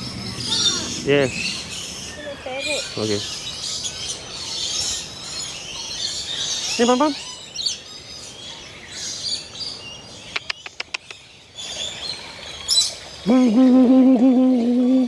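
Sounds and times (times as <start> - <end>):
birds chirping and calling: 0.0 - 15.0
quick run of clicks: 10.3 - 11.2
person humming: 13.2 - 15.0.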